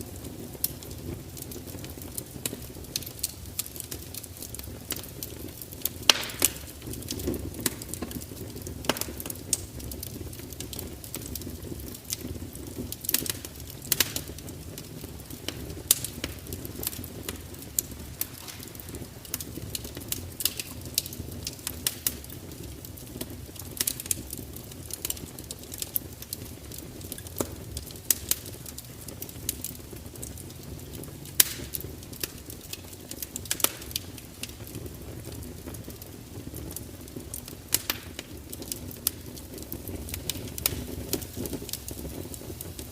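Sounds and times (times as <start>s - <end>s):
fire crackling: 0.0s - 42.9s.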